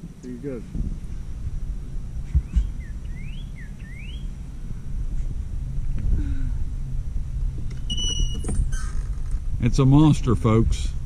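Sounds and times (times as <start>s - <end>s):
steady low rumble: 0.0s - 11.0s
bird whistling upward notes: 2.4s - 4.3s.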